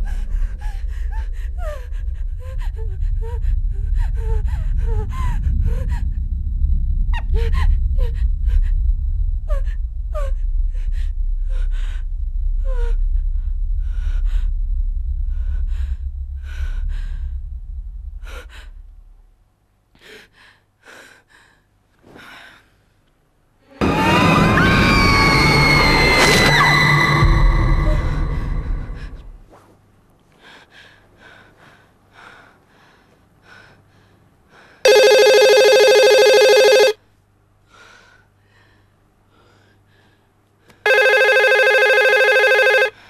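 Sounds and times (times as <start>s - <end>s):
deep low rumble: 0.0s - 19.8s, 23.8s - 29.5s.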